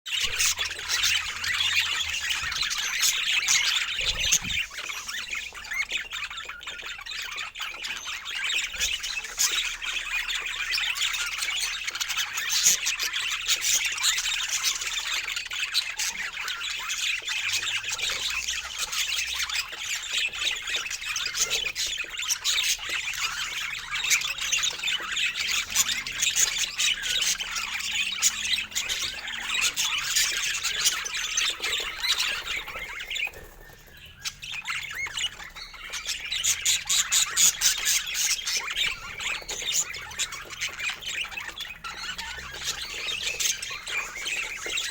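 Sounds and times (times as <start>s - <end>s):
flock of birds chattering: 0.1s - 44.9s.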